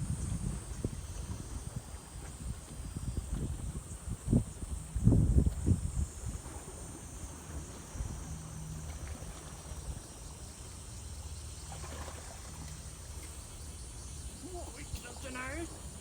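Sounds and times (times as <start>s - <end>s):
boat engine rumble: 0.0s - 16.0s
insects droning: 0.0s - 16.0s.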